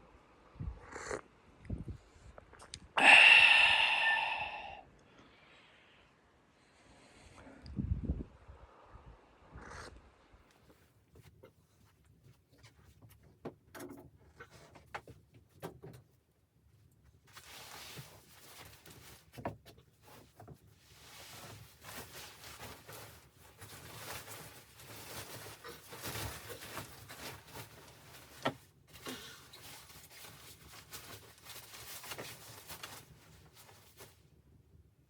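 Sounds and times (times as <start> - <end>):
close rustling handling noise: 10.6 - 34.6.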